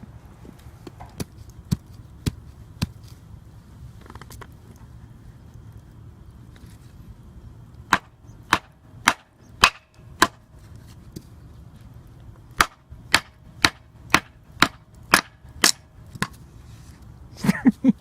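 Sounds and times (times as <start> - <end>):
flint striking: 7.9 - 10.4, 12.6 - 16.4.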